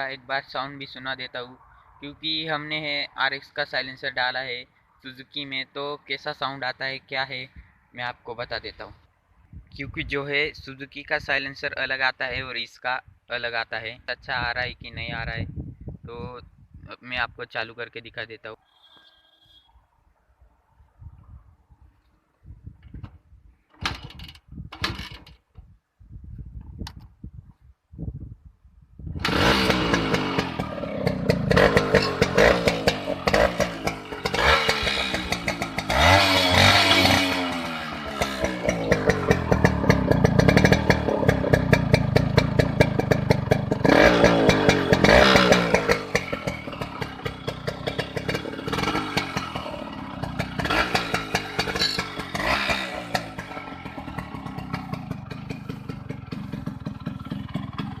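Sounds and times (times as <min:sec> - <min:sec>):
two-stroke engine revving and idling: 0:29.2 - 0:58.0.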